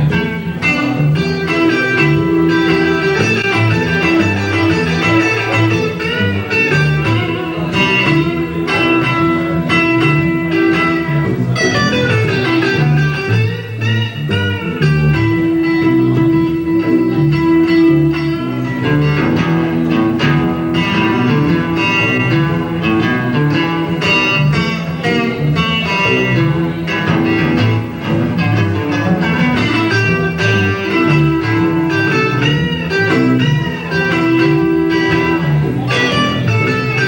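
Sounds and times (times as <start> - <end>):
bass: 0.0 - 37.0
drums: 0.0 - 37.0
lead guitar: 0.0 - 37.0.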